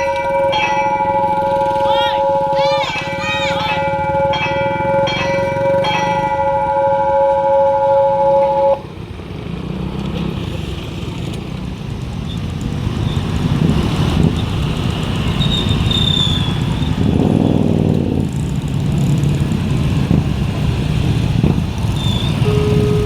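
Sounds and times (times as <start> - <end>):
level crossing alarm bell: 0.0 - 8.8, 22.3 - 23.0
road traffic engines: 0.0 - 23.0.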